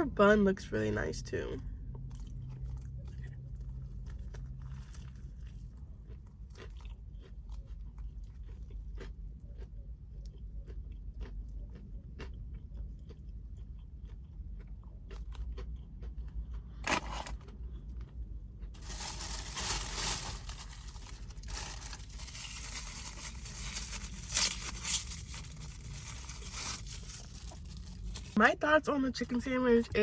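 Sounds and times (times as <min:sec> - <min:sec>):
soft chewing clicks: 0:01.9 - 0:16.8
continuous crunching: 0:02.0 - 0:28.4
crunchy bite: 0:04.1 - 0:17.6, 0:18.8 - 0:28.4.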